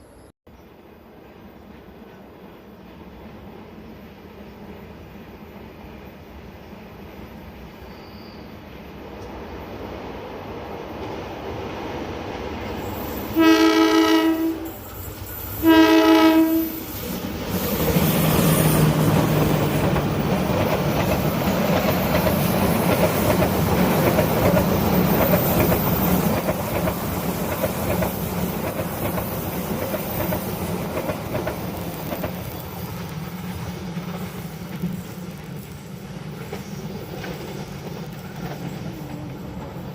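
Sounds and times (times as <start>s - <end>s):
locomotive horn blasts: 13.3s - 14.8s, 15.6s - 16.9s.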